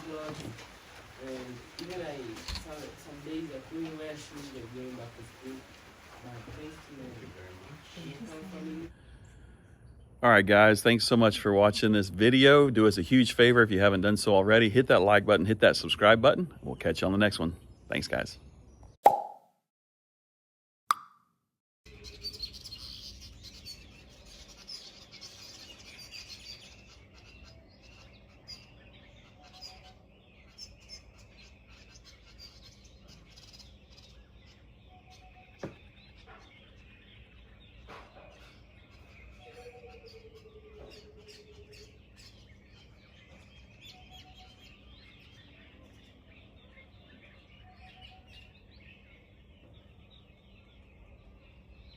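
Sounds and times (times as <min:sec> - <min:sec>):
birds chirping and calling: 0:00.0 - 0:19.0, 0:21.9 - 0:51.9
whistled bird notes: 0:21.9 - 0:51.9.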